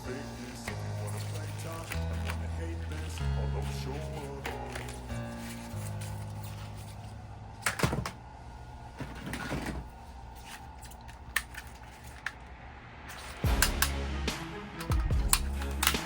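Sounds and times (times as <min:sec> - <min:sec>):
music with heavy bass: 0:13.2 - 0:16.0.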